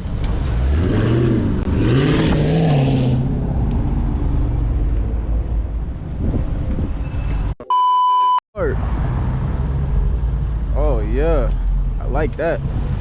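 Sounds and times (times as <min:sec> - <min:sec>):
car engine revving: 0:00.0 - 0:04.8.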